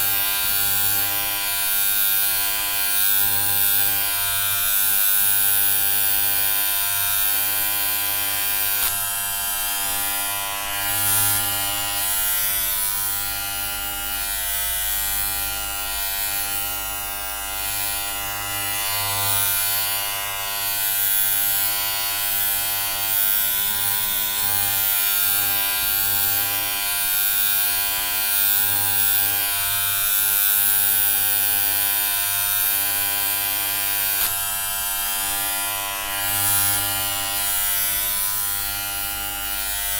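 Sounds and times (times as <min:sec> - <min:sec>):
electric hair clippers buzzing: 0:00.0 - 0:39.9.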